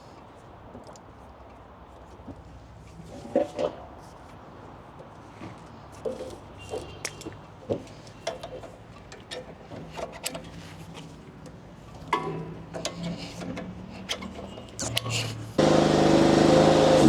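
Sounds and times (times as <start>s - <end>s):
engine idling: 15.6s - 17.0s.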